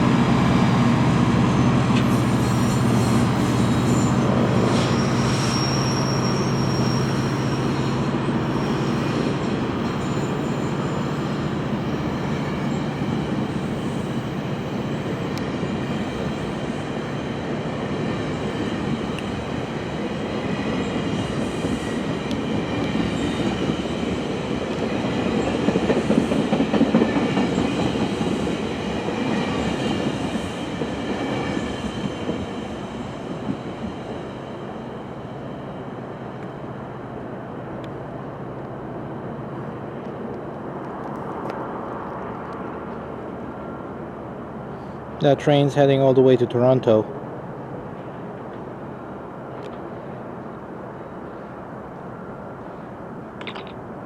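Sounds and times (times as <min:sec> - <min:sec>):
diesel locomotive humming: 0:00.0 - 0:31.1
train cars rumbling on rails: 0:00.0 - 0:45.5
high wheel squeal: 0:02.0 - 0:17.1.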